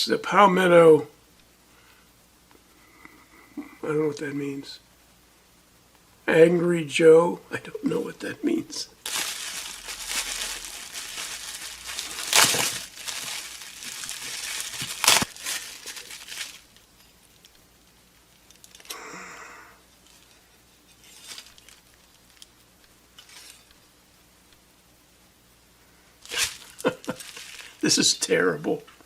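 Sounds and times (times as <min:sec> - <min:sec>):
packaging crinkling and tearing: 0:09.0 - 0:17.6, 0:18.2 - 0:19.0, 0:21.0 - 0:22.6, 0:23.2 - 0:23.8, 0:26.2 - 0:27.8.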